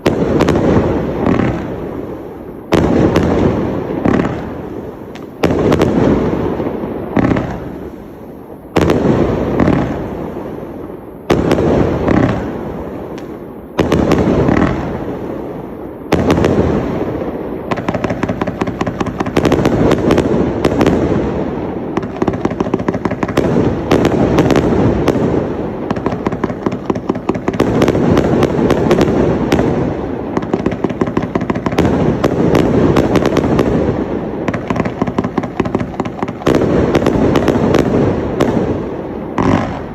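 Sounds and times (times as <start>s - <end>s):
firework crackling: 0.0s - 39.9s
firework shots: 0.0s - 39.9s.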